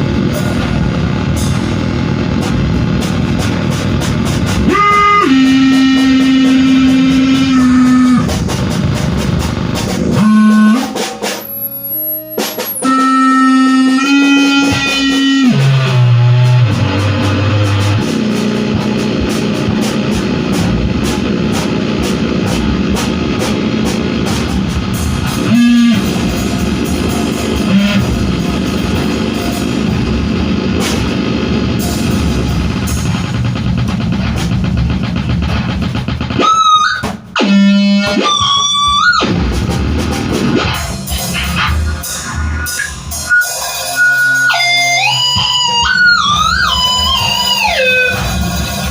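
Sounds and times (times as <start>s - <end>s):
distorted noise music: 0.0s - 48.9s
high wavering tones: 10.2s - 18.0s.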